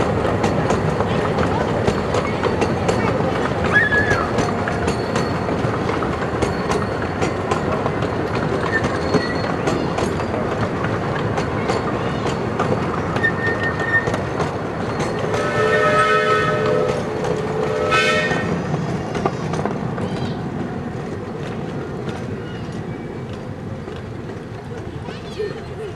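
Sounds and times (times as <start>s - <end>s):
steam train rumbling: 0.0s - 25.9s
wheels clicking on track: 0.0s - 25.9s
steam whistle blowing: 15.3s - 17.0s, 17.6s - 18.6s.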